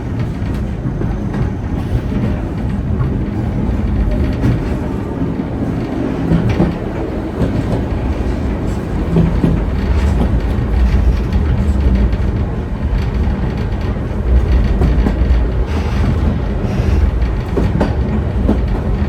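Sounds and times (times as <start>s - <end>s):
steam train rumbling: 0.0s - 19.0s.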